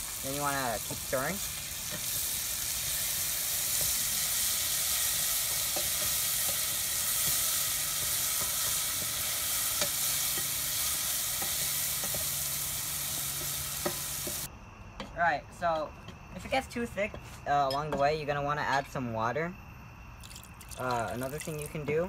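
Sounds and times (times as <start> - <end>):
paste sizzling in hot oil: 0.0 - 14.5.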